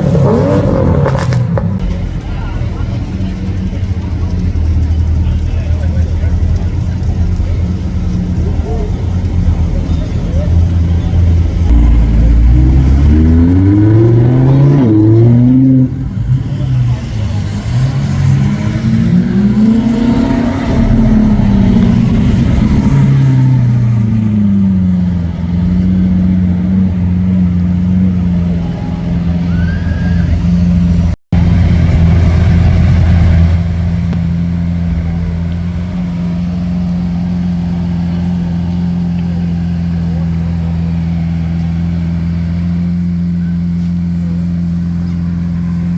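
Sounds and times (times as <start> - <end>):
car engine revving: 0.0 - 29.6.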